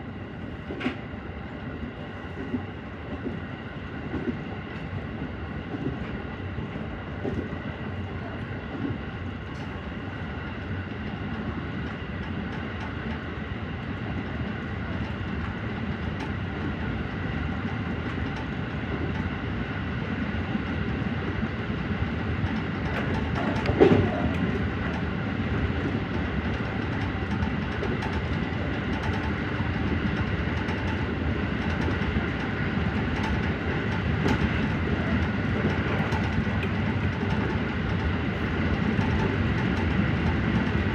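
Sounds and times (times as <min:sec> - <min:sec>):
wheels rumbling on rail: 0:00.0 - 0:40.9.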